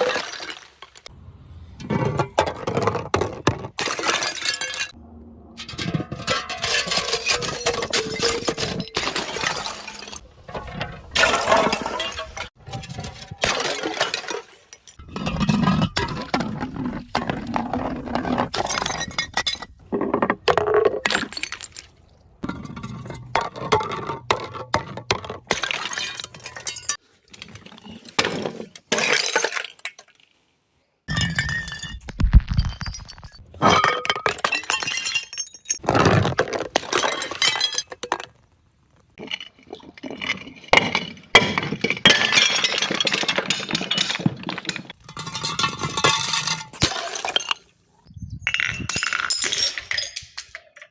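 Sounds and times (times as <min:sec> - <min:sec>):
glass bottles shattering: 0:02.4 - 0:05.0, 0:05.6 - 0:19.8, 0:20.6 - 0:24.0, 0:25.5 - 0:27.0, 0:28.3 - 0:30.2, 0:31.1 - 0:38.3, 0:39.2 - 0:47.8, 0:48.5 - 0:50.9
glass shards crunching and clinking: 0:03.8 - 0:05.0, 0:05.6 - 0:10.2, 0:10.8 - 0:16.4, 0:17.4 - 0:19.8, 0:25.6 - 0:27.0, 0:31.1 - 0:35.8, 0:39.2 - 0:47.7, 0:48.5 - 0:50.9.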